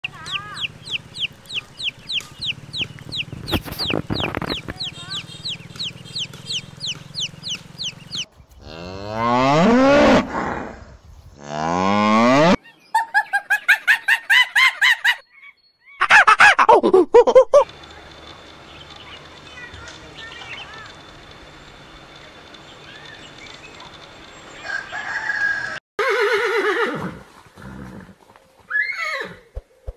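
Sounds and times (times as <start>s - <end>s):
ducklings peeping: 0.0s - 8.3s, 17.6s - 21.4s
honking calls: 0.0s - 10.2s, 17.7s - 26.6s
cow mooing: 8.6s - 10.7s, 11.4s - 12.6s.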